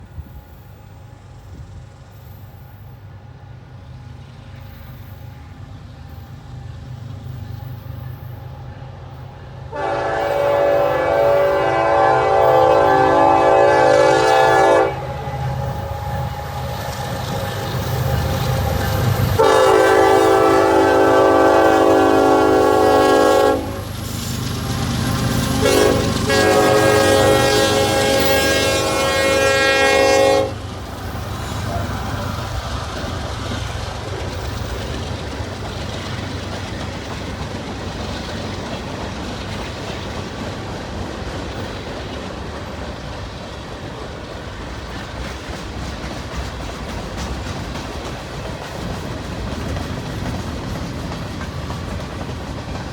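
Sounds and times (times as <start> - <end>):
freight train rumbling past: 0.0 - 52.9
locomotive horn blasts: 9.7 - 16.8, 19.4 - 23.8, 25.6 - 30.6
wheels clacking over rail joints: 30.0 - 52.9.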